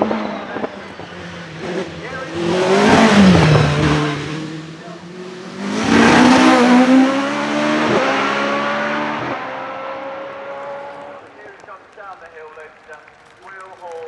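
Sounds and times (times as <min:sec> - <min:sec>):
race car passing by: 0:00.0 - 0:11.6
race car engine at full throttle: 0:00.0 - 0:11.9
race car gear upshifts: 0:00.4 - 0:04.6.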